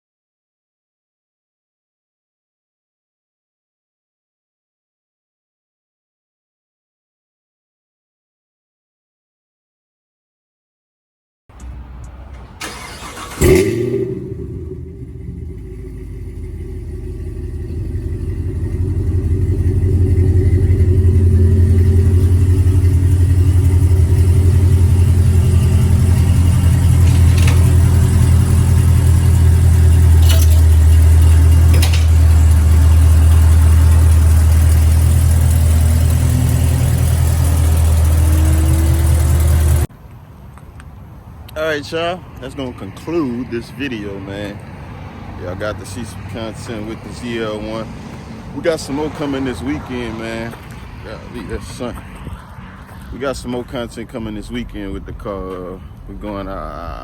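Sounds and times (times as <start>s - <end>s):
car engine low exhaust note: 13.4s - 39.9s.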